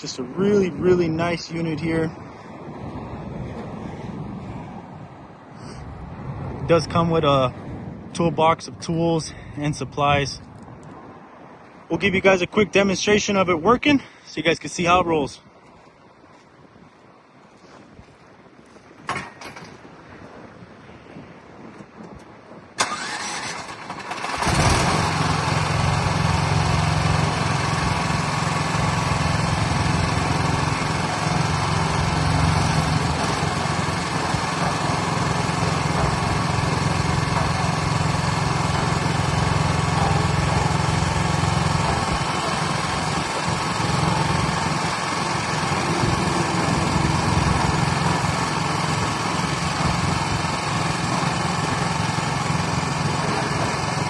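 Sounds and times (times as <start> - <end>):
engine starting and running: 22.8 - 54.0.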